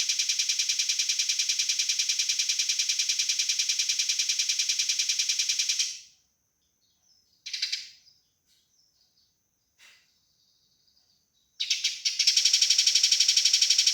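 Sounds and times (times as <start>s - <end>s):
faint bird chirps: 3.7s - 13.9s
sparrow chatter: 6.8s - 13.9s.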